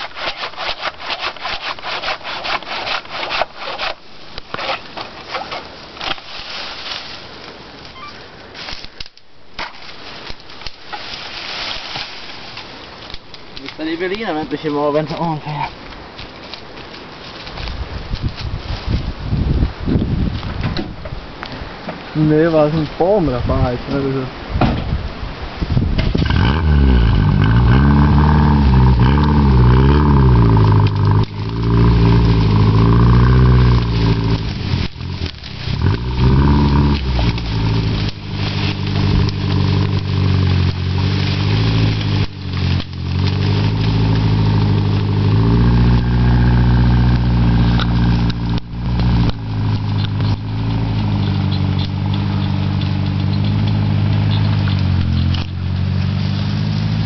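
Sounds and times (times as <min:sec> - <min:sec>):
tractor engine revving: 0:26.0 - 0:57.0.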